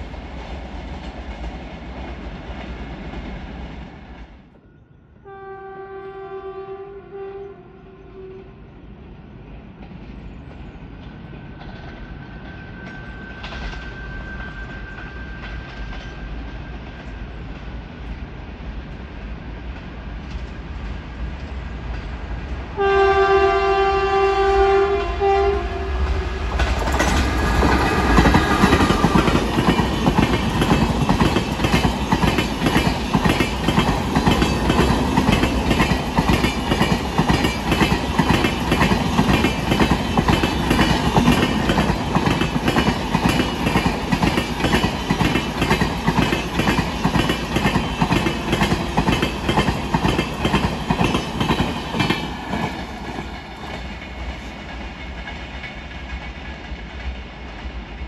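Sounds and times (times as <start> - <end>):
train rumble: 0.0 - 4.7, 5.3 - 58.0
train horn long blast: 5.2 - 8.7, 22.8 - 26.6.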